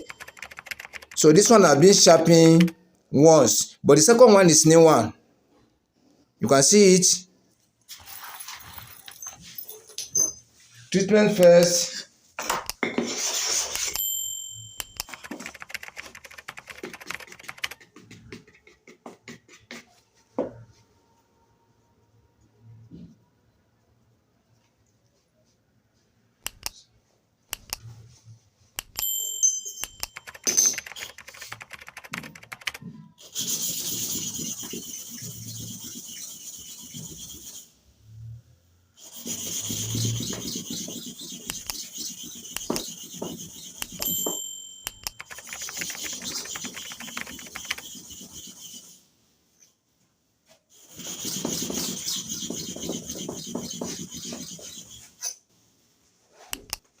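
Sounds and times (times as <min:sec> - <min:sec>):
metallic rings: 0:13.8 - 0:15.2, 0:28.8 - 0:30.8, 0:43.6 - 0:47.6
blade scraping on sharpening stone: 0:39.0 - 0:44.2.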